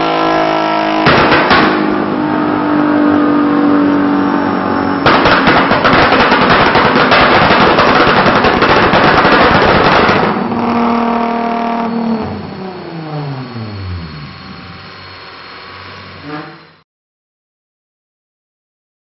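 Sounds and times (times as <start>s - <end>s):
harsh rapid engine crackle: 0.0s - 16.6s
car engine at full throttle: 0.0s - 16.8s.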